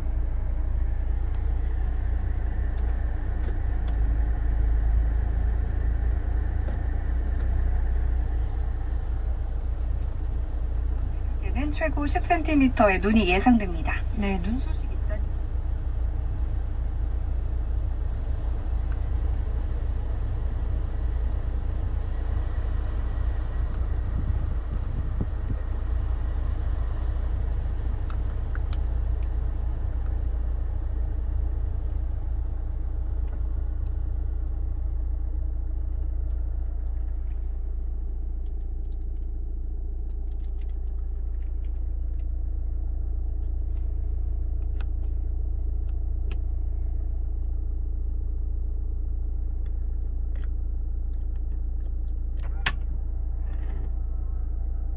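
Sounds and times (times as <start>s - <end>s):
diesel engine low rumble: 0.0s - 54.9s
faint clicks: 40.0s - 42.5s.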